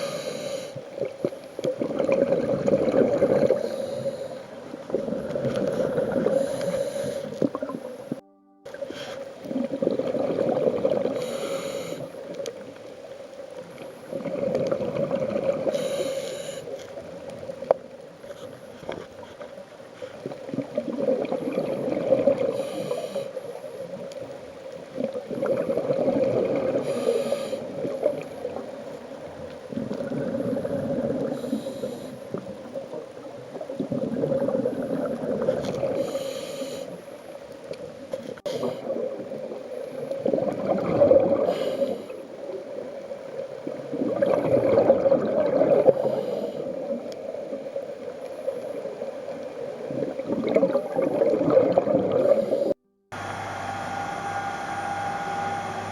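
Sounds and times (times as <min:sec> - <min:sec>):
regulator inhale hiss: 0:00.0 - 0:01.6, 0:03.4 - 0:08.2, 0:08.8 - 0:09.4, 0:11.1 - 0:12.3, 0:15.6 - 0:17.0, 0:22.4 - 0:24.0, 0:26.8 - 0:28.0, 0:30.5 - 0:32.5, 0:35.9 - 0:37.4, 0:41.4 - 0:42.4, 0:45.8 - 0:47.0, 0:52.3 - 0:52.8
exhaled bubbles gurgling: 0:00.0 - 0:08.2, 0:08.8 - 0:19.0, 0:20.2 - 0:37.0, 0:37.6 - 0:52.8.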